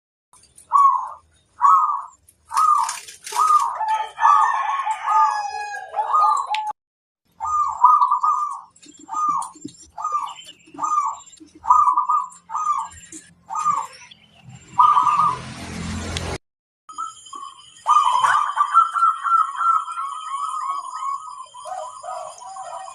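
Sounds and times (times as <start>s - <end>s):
doves cooing: 0.7s - 6.7s, 7.3s - 14.0s, 14.8s - 15.5s, 17.9s - 22.9s
small birds chirping: 7.3s - 15.5s, 16.9s - 22.9s.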